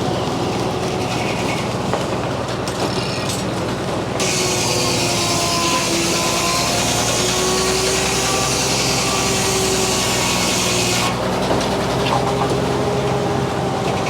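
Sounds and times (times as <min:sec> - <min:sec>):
circular saw blade cutting wood: 0:04.2 - 0:14.0
engine droning: 0:11.1 - 0:14.0.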